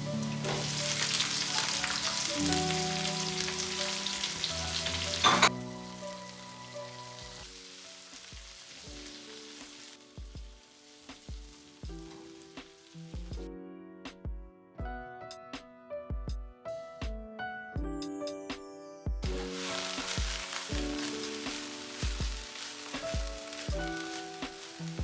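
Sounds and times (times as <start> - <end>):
onions sizzling in oil: 0.0 - 13.2, 19.3 - 25.0
music with sustained notes: 0.0 - 25.0.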